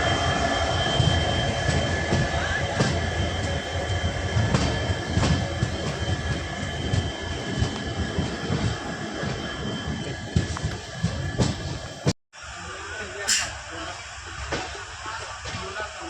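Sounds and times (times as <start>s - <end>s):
train wheels rumbling on track: 0.0s - 16.0s.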